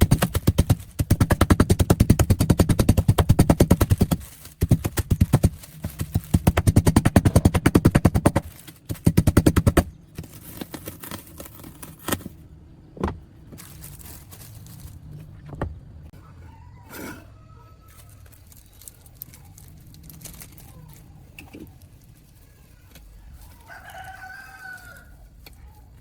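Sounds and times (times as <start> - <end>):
rapid mechanical hammering: 0.0 - 10.0.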